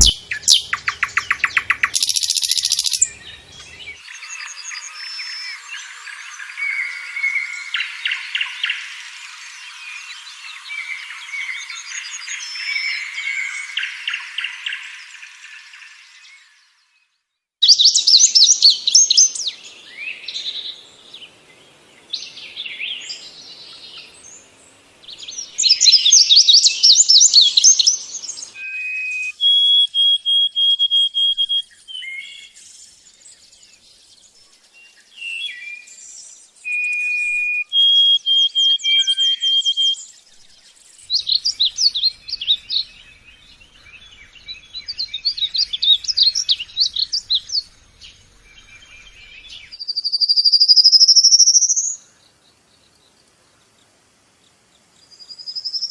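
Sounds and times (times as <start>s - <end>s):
lovebird whistle notes: 0.0s - 3.1s, 36.7s - 40.0s
lovebird chattering trills: 0.0s - 3.2s.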